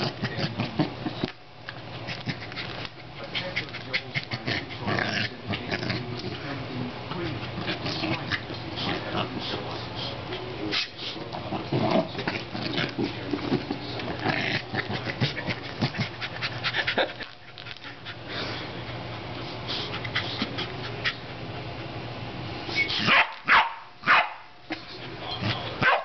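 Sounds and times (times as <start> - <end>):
dog panting: 0.0 - 4.9, 12.2 - 21.3
steady low hum: 0.0 - 23.1.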